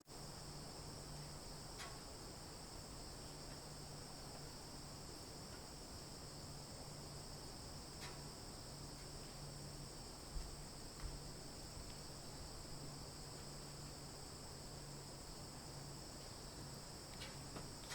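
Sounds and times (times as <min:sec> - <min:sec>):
insect chorus: 0:00.1 - 0:17.9.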